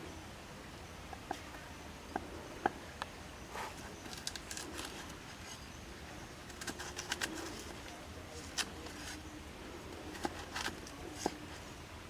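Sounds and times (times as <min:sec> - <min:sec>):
scratchy rustling: 0:06.4 - 0:09.4.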